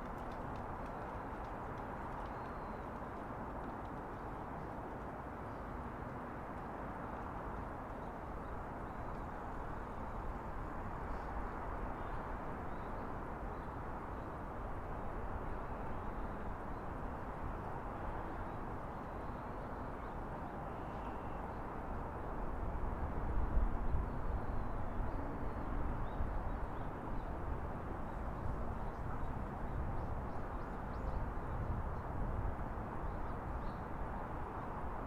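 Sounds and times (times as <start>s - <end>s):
hum of traffic: 0.0s - 35.0s.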